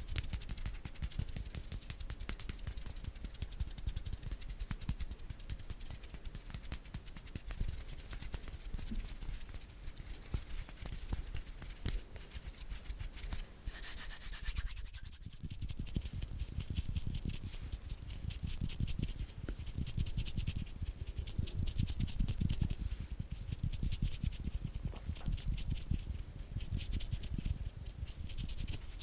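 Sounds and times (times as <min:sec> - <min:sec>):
hands rubbing together: 0:00.0 - 0:20.0, 0:26.6 - 0:29.0.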